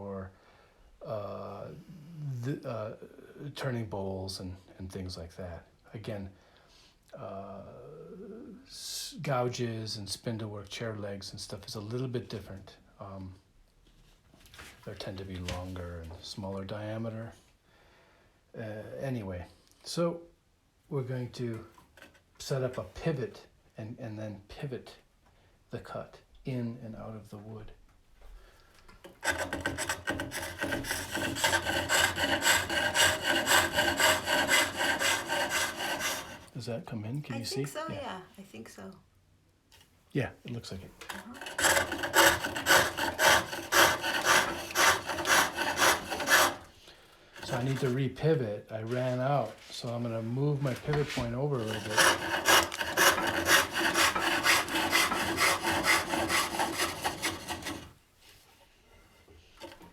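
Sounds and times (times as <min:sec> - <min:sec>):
wood shaving on a lathe: 0:29.0 - 0:36.6, 0:41.1 - 0:46.8, 0:47.4 - 0:48.0, 0:50.8 - 0:58.0.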